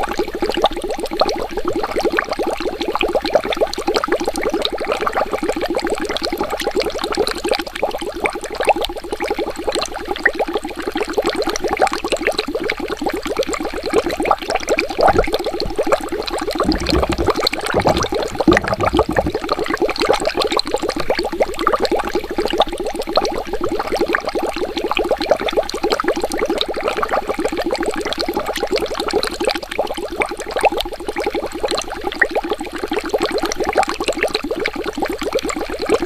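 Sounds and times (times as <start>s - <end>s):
water bubbling: 14.9s - 19.8s.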